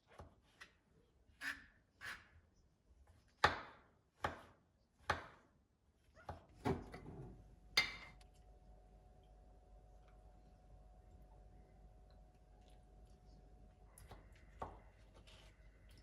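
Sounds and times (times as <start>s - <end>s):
appliance humming with faint whine: 4.3s - 16.0s.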